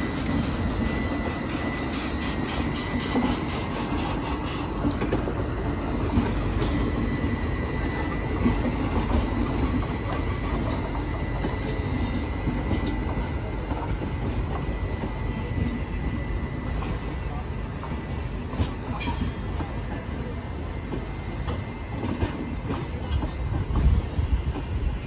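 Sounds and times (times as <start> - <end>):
train wheels rumbling on rails: 0.0 - 25.0
wheel squeal: 23.6 - 24.7.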